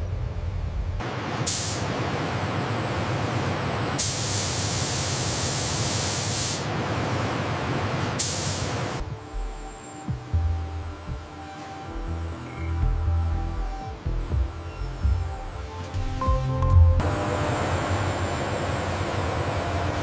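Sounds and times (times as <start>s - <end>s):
spraying air hiss: 1.4s - 2.0s, 4.0s - 6.7s, 8.2s - 9.0s
low hum: 9.0s - 19.8s.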